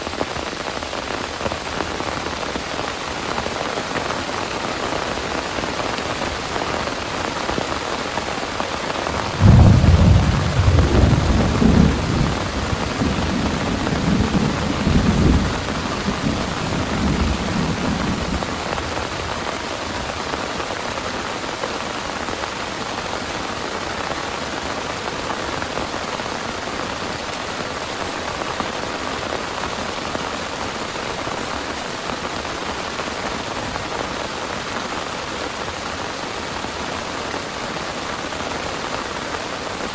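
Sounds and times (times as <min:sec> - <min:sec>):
heavy rain: 0:00.0 - 0:39.9
thunderclap rumbling: 0:09.0 - 0:20.0.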